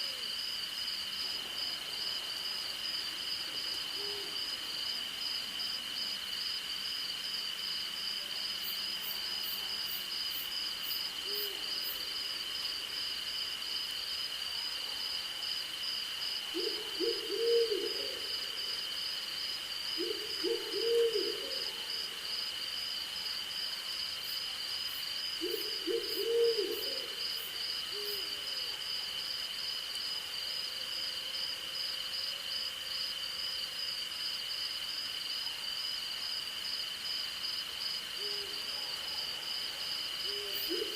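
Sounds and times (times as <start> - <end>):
crickets and night insects chirping: 0.0 - 40.9
owl hooting: 16.6 - 18.4, 20.0 - 21.8, 25.4 - 27.1.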